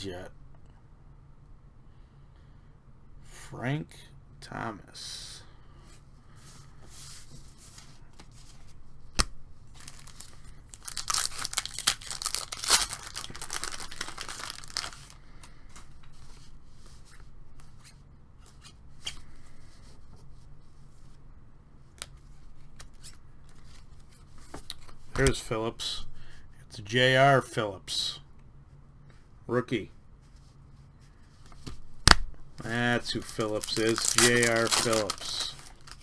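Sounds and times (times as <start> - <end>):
wrapper tearing and crinkling: 9.7 - 15.2, 33.0 - 36.0.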